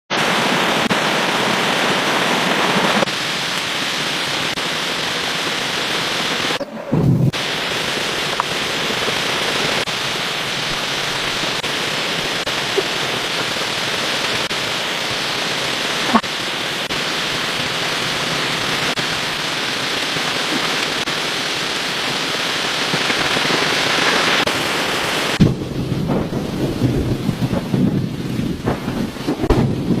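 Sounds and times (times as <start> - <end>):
rushing hissing water: 0.1 - 30.0
low rumbles and knocks: 25.4 - 30.0.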